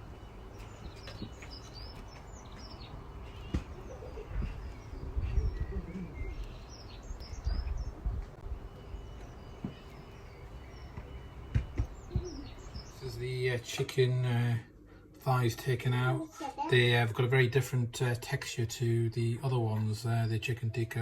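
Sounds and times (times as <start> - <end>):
small birds chirping: 0.0 - 17.1
rough low rumble: 3.7 - 13.7.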